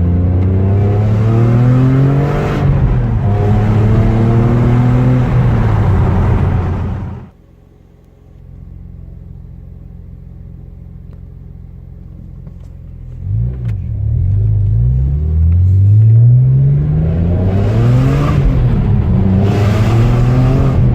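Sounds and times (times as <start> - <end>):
car engine revving through exhaust: 0.0 - 7.4, 13.0 - 20.9.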